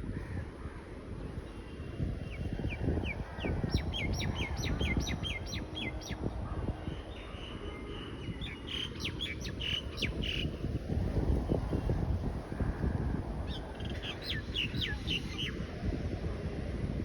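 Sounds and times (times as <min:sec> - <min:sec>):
songbird chirping: 0:06.8 - 0:10.7.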